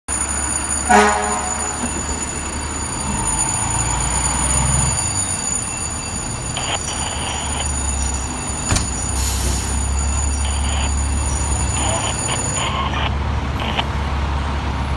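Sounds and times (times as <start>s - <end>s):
fire engine rumbling: 0.1s - 14.9s
air horn blast: 0.9s - 1.8s.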